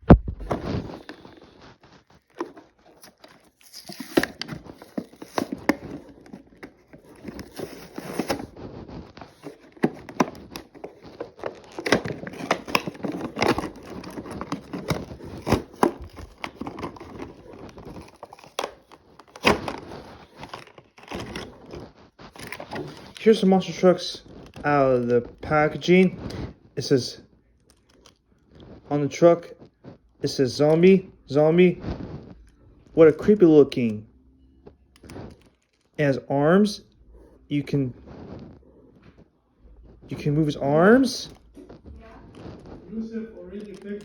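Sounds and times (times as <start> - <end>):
plastic and cardboard crinkling: 0.0 - 26.6, 34.6 - 36.1, 37.9 - 44.0.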